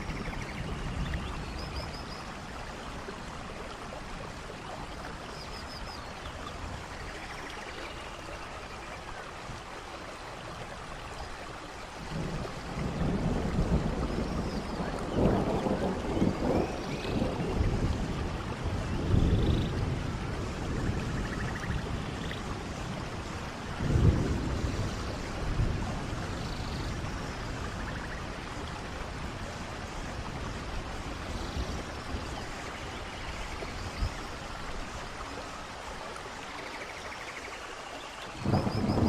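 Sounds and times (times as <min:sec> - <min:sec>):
steady rain falling: 0:00.0 - 0:39.0
thunder rumbling: 0:12.0 - 0:22.3, 0:22.9 - 0:32.5, 0:38.4 - 0:39.0.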